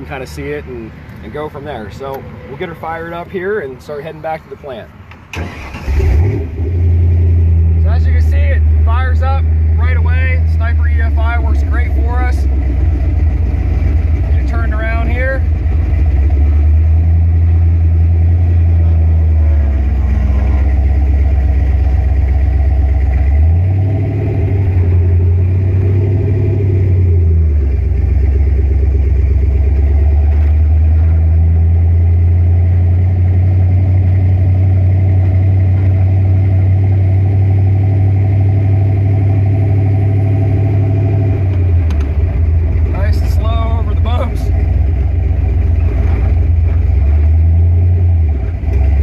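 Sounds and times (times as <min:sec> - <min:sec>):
car engine while driving: 0:05.1 - 0:49.0.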